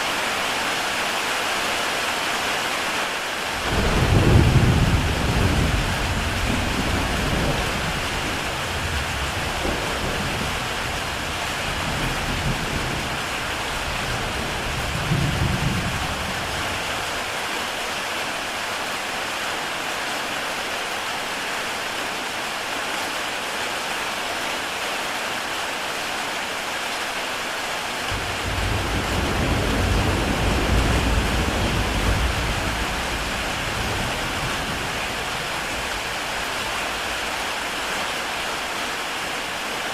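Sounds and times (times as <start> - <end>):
heavy rain on a tile roof: 0.0 - 39.9
thunder rolling: 3.6 - 13.2, 28.1 - 37.4.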